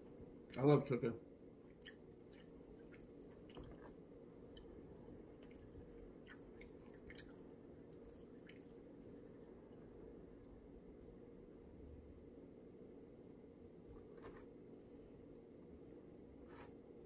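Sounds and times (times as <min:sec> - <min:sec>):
low room hum: 0:00.0 - 0:17.0
person chewing food: 0:01.6 - 0:10.0.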